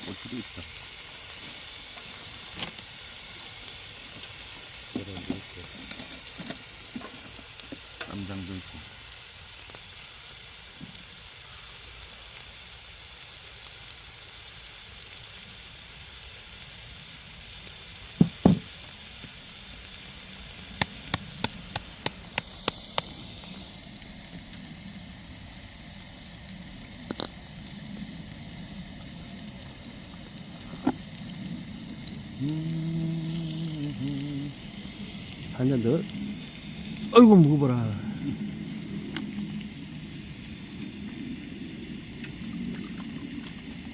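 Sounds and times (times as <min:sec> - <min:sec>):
food sizzling in a pan: 0:00.0 - 0:43.9
loud knocks: 0:18.2 - 0:18.7.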